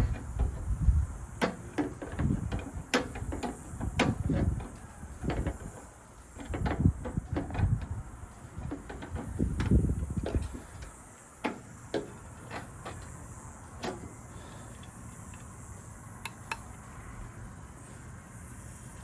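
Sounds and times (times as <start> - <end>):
metal lock parts rustling: 0.0 - 15.5, 16.2 - 16.8
light metallic clicks: 16.2 - 16.8.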